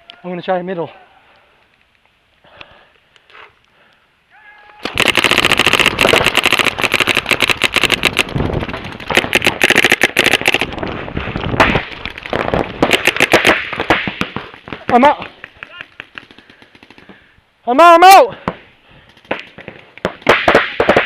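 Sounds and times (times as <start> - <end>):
paintball markers firing: 4.8 - 10.8, 11.6 - 17.2, 19.0 - 21.0.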